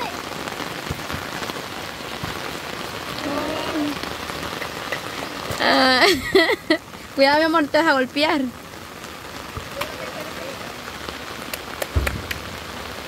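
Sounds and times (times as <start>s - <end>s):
rain falling steadily: 0.0s - 13.0s
voice: 3.2s - 4.0s, 5.6s - 8.5s, 9.7s - 10.8s.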